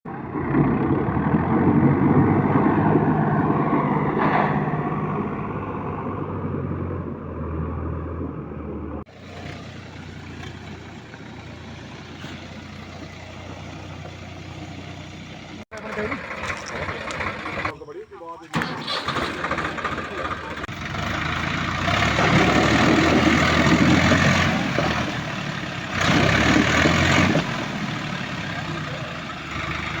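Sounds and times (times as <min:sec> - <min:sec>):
diesel engines droning: 0:00.0 - 0:30.0.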